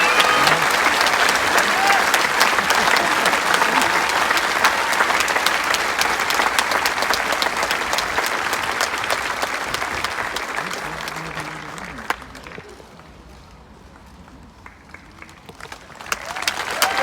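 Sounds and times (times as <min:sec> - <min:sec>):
crowd cheering: 0:00.0 - 0:12.2, 0:16.0 - 0:17.0
crowd applauding: 0:00.0 - 0:13.0, 0:14.6 - 0:17.0.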